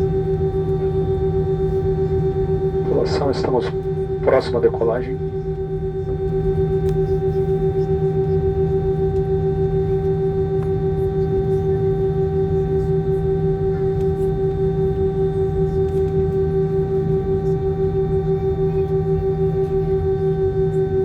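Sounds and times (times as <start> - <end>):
aircraft engines droning: 2.3 - 6.6.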